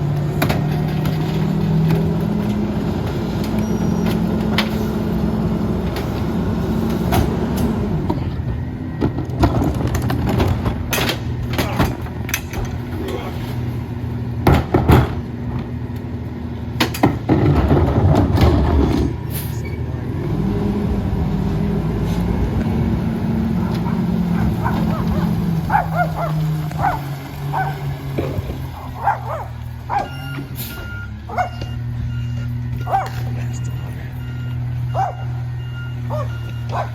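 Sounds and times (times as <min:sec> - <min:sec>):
garbage truck diesel engine: 0:00.0 - 0:36.9
trash clattering into hopper: 0:00.2 - 0:15.8, 0:16.8 - 0:19.5
dog barking: 0:23.6 - 0:27.9, 0:28.7 - 0:30.2, 0:31.3 - 0:31.7, 0:32.8 - 0:33.3, 0:34.9 - 0:35.4, 0:36.1 - 0:36.9.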